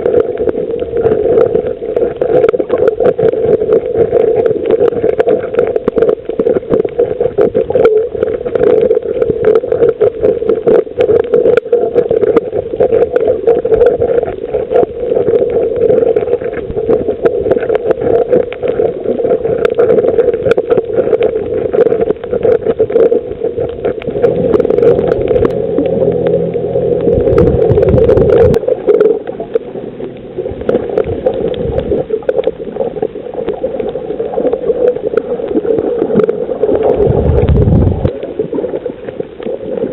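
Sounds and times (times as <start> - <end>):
crackle of fine clicks: 0.0 - 39.9
muffled underwater water rush: 0.0 - 39.9
low hum: 23.7 - 33.1.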